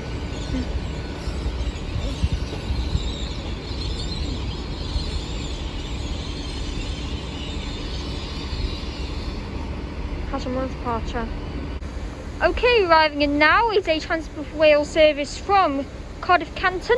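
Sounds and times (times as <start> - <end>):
train low rumble: 0.0 - 16.9.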